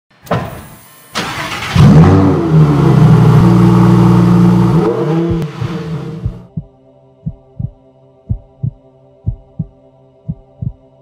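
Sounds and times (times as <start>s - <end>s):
car engine revving: 1.2s - 6.5s.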